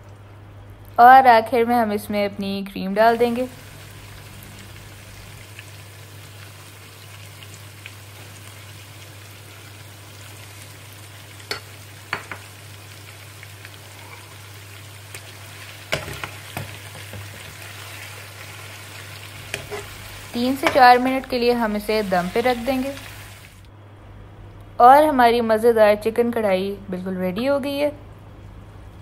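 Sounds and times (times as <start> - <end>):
chicken sizzling in a pan: 3.1 - 23.7
steady low hum: 19.2 - 29.0
metal spatula clinking and scraping pan: 19.5 - 20.0.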